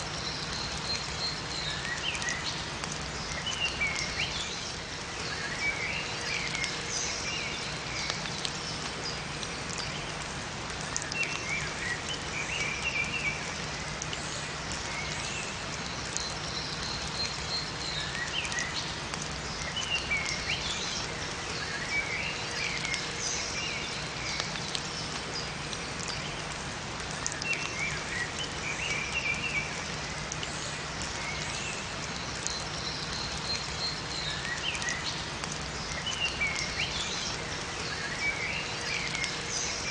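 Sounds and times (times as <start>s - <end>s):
rain falling in forest: 0.0s - 39.9s
small birds chirping: 27.1s - 39.9s.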